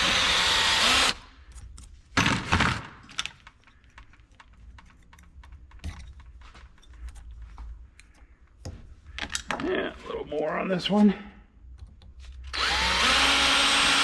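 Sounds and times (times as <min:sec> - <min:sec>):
electric drill on metal: 0:00.0 - 0:01.3, 0:12.5 - 0:14.0.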